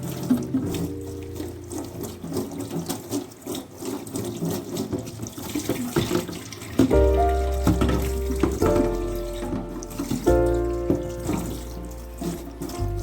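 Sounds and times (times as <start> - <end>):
tap water splashing into sink: 0.0 - 13.0
background music: 6.9 - 13.0.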